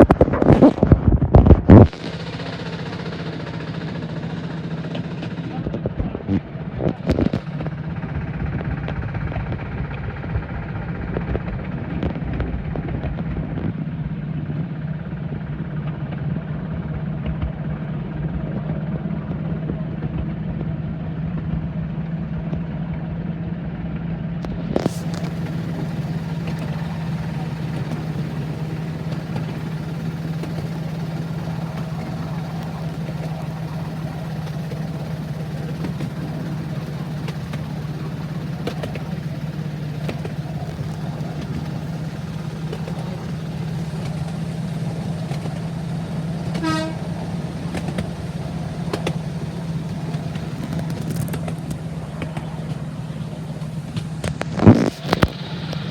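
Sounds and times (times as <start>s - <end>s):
vehicle engine drone: 0.0s - 55.9s
short horn toot: 46.4s - 47.9s.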